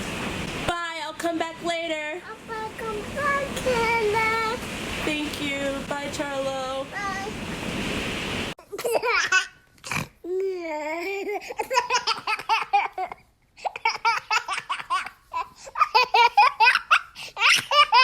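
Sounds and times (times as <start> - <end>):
young child laughing: 8.6 - 9.5, 10.9 - 18.0.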